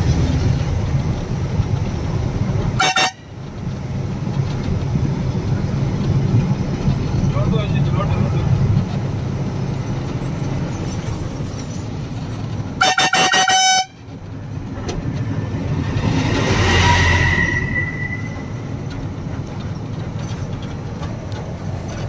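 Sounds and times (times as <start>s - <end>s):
truck engine running: 0.0s - 17.0s, 17.7s - 22.0s
road noise: 0.0s - 22.0s
lorry horn short toots: 12.8s - 14.0s.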